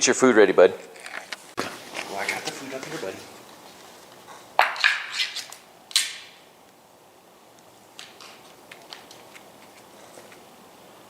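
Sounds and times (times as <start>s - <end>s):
cat food scraping and rustling: 8.1s - 10.6s.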